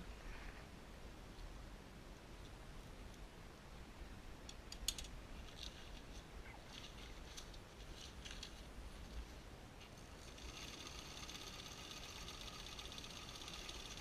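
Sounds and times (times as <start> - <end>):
rustling: 4.9 - 13.6
sewing machine stitching: 10.0 - 14.0.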